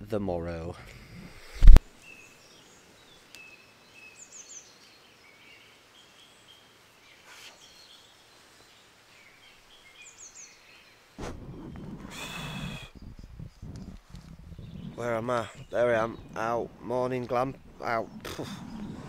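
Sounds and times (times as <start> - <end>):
faint birdsong chirps: 0.7 - 19.0
rustling noise: 1.2 - 1.8, 11.2 - 19.0.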